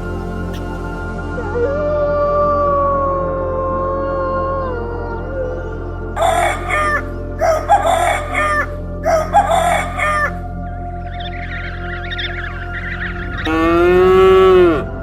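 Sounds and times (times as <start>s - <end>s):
soft background music pad: 0.0s - 15.0s
rooster crowing: 6.2s - 10.4s.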